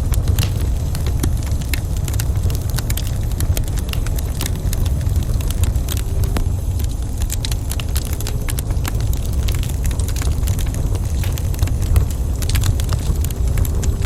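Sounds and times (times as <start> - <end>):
fire low rumble: 0.0 - 14.0
wood fire crackling and popping: 0.0 - 14.0.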